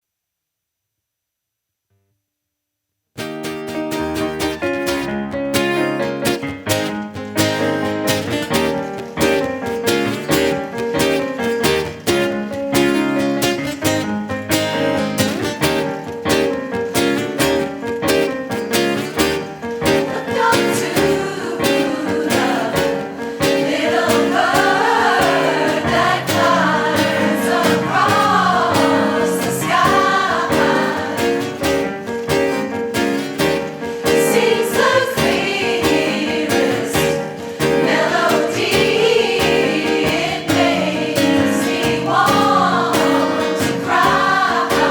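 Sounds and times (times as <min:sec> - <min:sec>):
acoustic guitar strumming: 0:03.2 - 0:44.9
choir singing: 0:19.7 - 0:32.7, 0:33.4 - 0:44.9.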